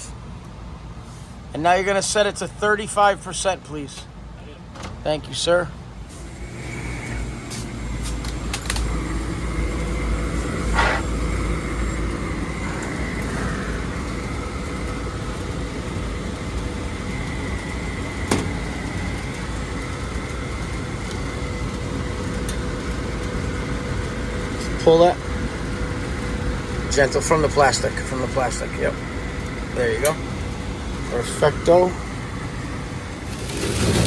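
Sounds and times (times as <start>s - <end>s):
hvac equipment humming: 0.0s - 34.0s.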